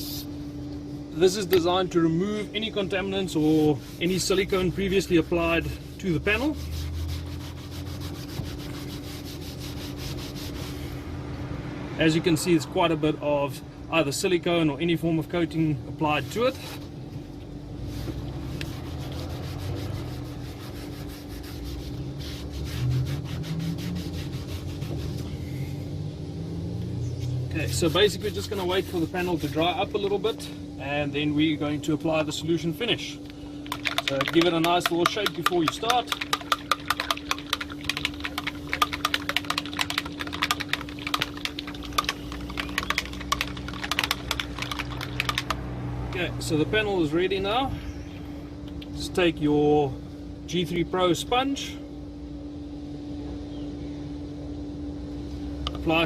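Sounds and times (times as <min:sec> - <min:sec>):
steady low hum: 0:00.0 - 0:56.0
cloth scrubbing plastic: 0:03.3 - 0:10.8, 0:17.9 - 0:25.2, 0:27.6 - 0:30.1, 0:33.6 - 0:45.6
bottle being shaken rattling: 0:33.6 - 0:45.7.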